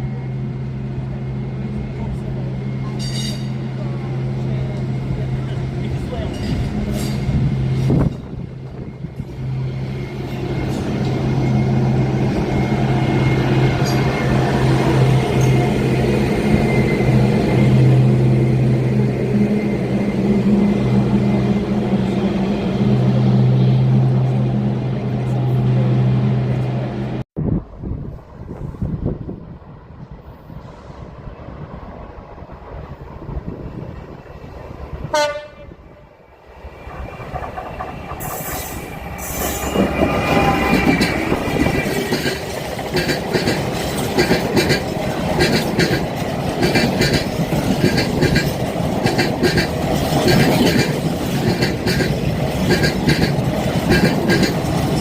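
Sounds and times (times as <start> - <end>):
train wheels squealing: 0.0 - 18.0, 36.8 - 44.0
diesel train engine drone: 0.0 - 55.0
wheels clattering over rail joints: 37.0 - 55.0.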